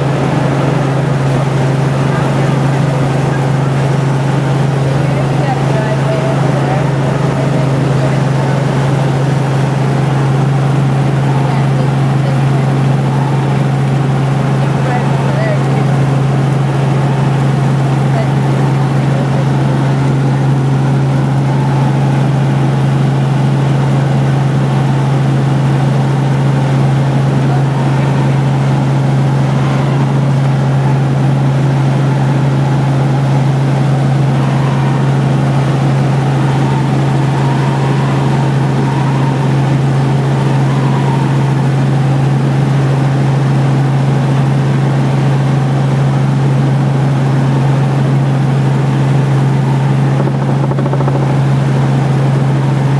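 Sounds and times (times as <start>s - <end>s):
helicopter rotor and engine drone: 0.0s - 52.9s.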